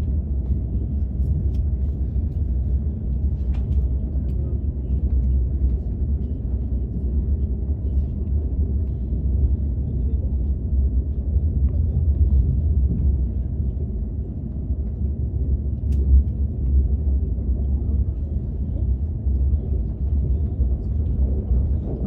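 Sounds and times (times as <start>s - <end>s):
train rumble inside passenger car: 0.0s - 22.0s
faint light ticks: 15.8s - 16.4s.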